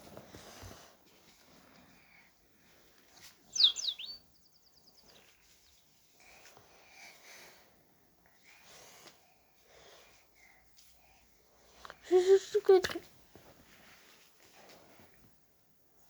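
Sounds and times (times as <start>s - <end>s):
cockatiel chirp: 3.5s - 4.8s.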